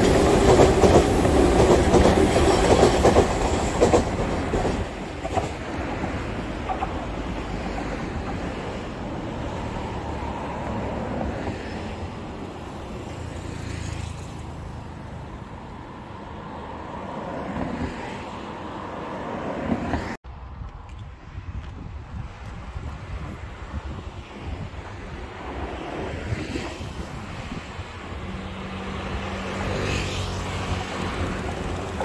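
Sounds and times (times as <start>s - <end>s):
electric train rumble: 0.0s - 13.2s, 30.5s - 32.0s
wind on microphone: 20.3s - 29.4s.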